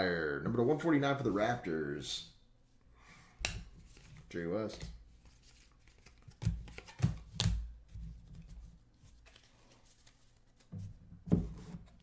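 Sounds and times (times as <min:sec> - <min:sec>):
cards sliding and bumping: 0:03.4 - 0:12.0.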